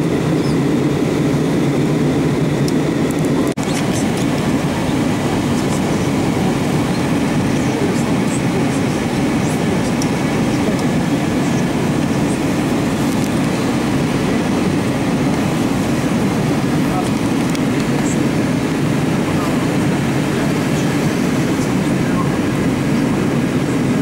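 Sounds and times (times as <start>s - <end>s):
airplane cabin airflow rush: 0.0s - 24.0s
jet engine hum: 0.0s - 24.0s.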